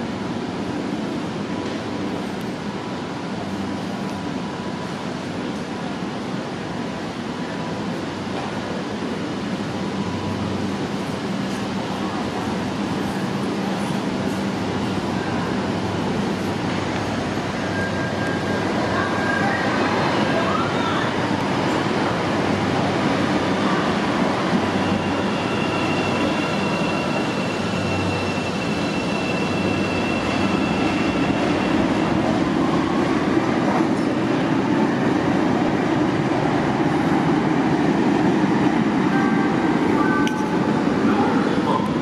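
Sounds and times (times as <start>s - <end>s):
train wheels rumbling on rails: 0.0s - 42.0s
high wheel squeal: 17.6s - 21.2s, 24.5s - 32.2s.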